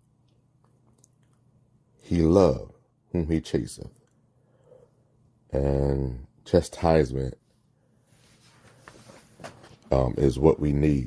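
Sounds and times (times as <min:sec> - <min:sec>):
man speaking: 0:02.0 - 0:04.0, 0:05.5 - 0:07.4, 0:09.9 - 0:11.0.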